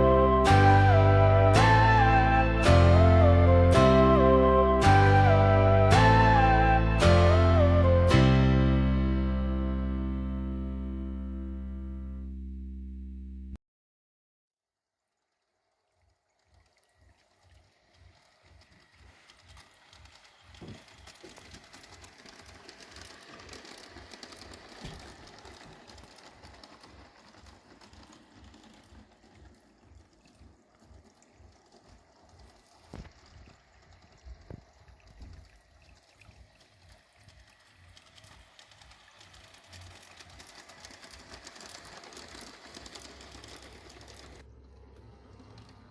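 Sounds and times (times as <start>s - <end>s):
model train running on track: 0.0s - 12.1s, 15.2s - 45.9s
sharp track clicks: 16.4s - 45.9s.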